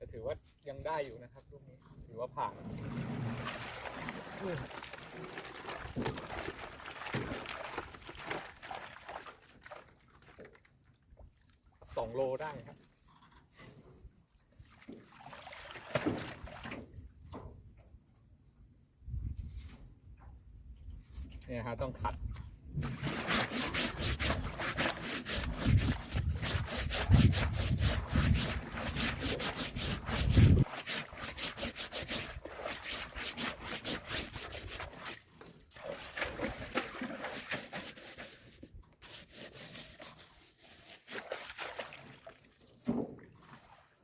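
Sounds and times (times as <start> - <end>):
scrubbing strokes on fish trap: 22.8 - 42.2.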